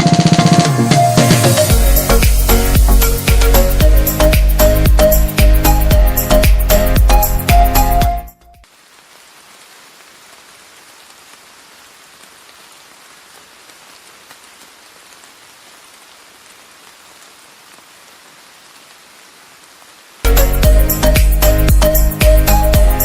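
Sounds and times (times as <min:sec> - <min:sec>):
background music: 0:00.0 - 0:08.6, 0:20.3 - 0:23.0.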